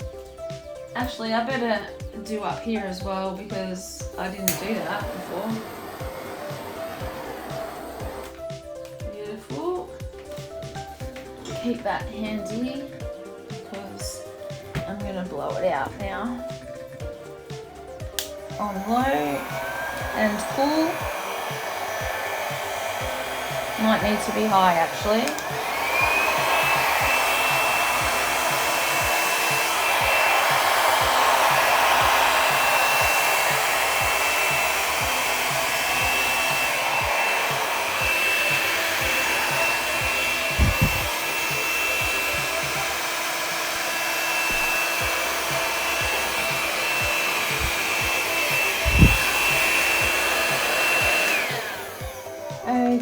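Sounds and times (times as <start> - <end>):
hair dryer whining: 0.0 - 53.0
low thumps: 18.6 - 41.2, 44.4 - 50.1.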